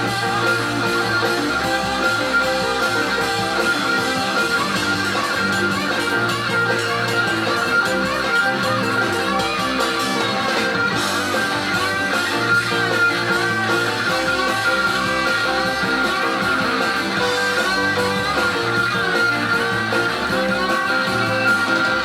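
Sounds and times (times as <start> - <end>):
electric guitar solo: 0.0 - 22.0
rock band playing live: 0.0 - 22.0.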